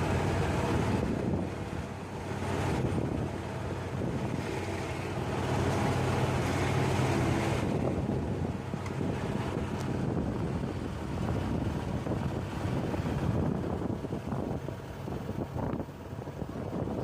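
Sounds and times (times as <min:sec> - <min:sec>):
engine humming: 0:00.0 - 0:17.0
wind buffeting microphone: 0:00.0 - 0:17.0.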